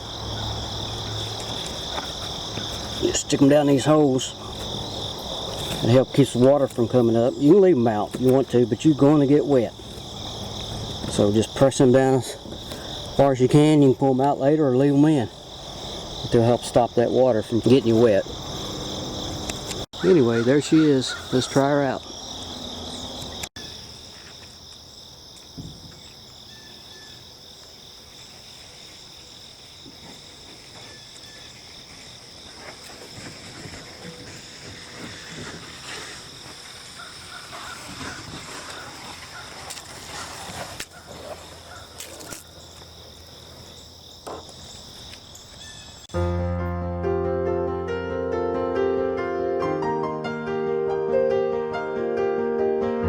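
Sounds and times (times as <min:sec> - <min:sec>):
insects chorus: 0:00.0 - 0:46.3
music: 0:46.2 - 0:53.0.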